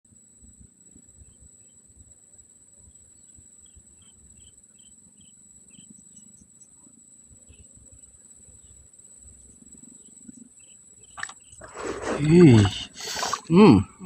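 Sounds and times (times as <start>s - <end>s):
insects droning: 0.1s - 14.0s
short insect chirps: 2.9s - 13.6s.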